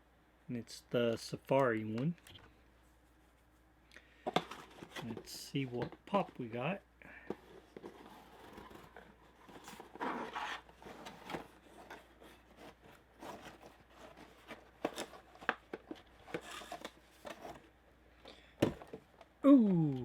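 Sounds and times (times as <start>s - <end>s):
cardboard box and plastic rustling: 4.2s - 6.6s, 7.2s - 20.0s.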